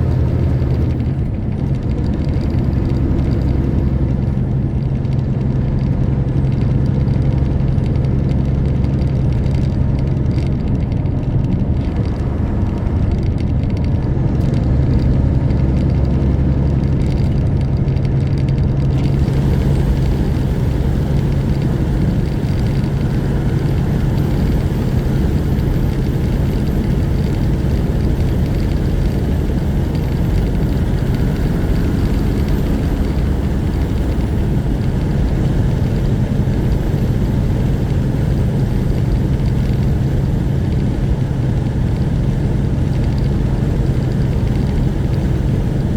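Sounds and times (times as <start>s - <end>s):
diesel truck engine drone: 0.0s - 45.9s
road and wind noise hiss: 10.2s - 45.9s.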